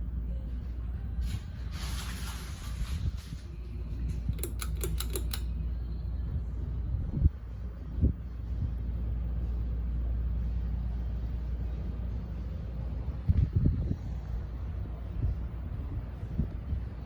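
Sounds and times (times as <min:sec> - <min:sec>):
ceiling fan humming: 0:00.0 - 0:17.0
sharp clicks: 0:04.1 - 0:05.5.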